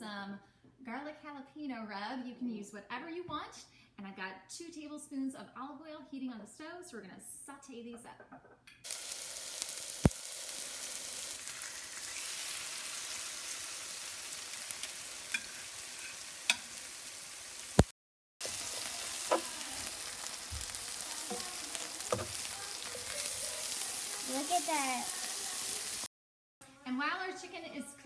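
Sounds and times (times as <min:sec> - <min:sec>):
chicken sizzling in oil: 0:08.8 - 0:26.1.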